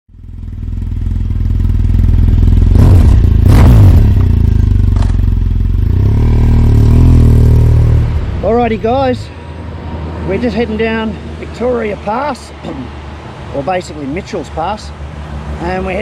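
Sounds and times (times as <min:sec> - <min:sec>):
motorcycle engine running: 0:00.1 - 0:08.6.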